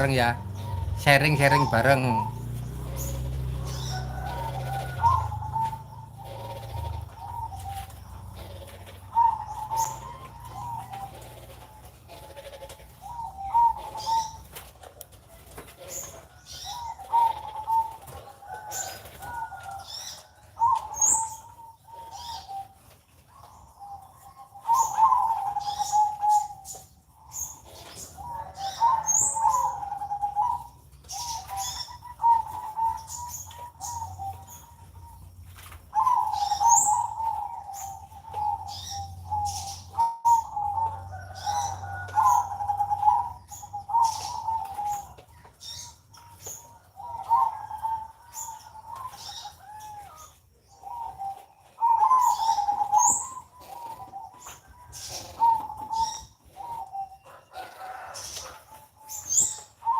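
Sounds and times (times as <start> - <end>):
dove trilling coo: 0.0 - 59.9
small birds chirping: 0.0 - 59.9.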